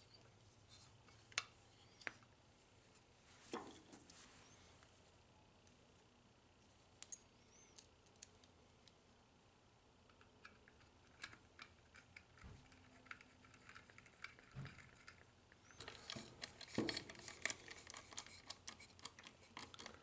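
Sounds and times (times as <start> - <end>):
small parts clicking and tapping: 7.0 - 9.0, 10.0 - 20.0.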